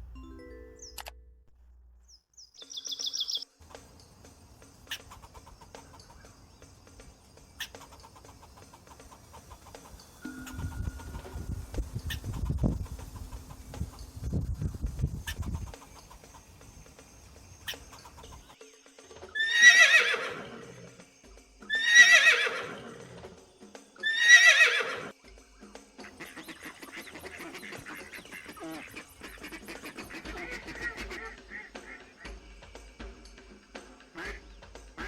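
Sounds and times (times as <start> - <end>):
horse whinnying: 19.4 - 20.9, 21.7 - 23.2, 24.0 - 25.1.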